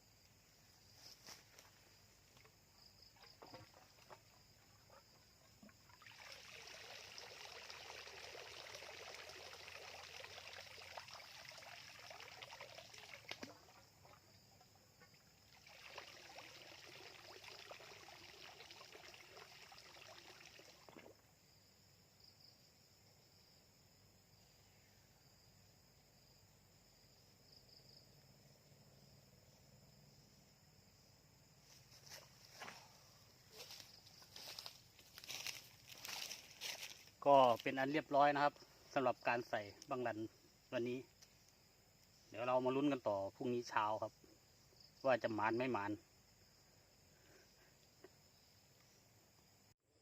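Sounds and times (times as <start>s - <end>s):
insects trilling: 0.0s - 50.0s
water trickling and sloshing: 1.3s - 21.2s, 31.7s - 41.4s.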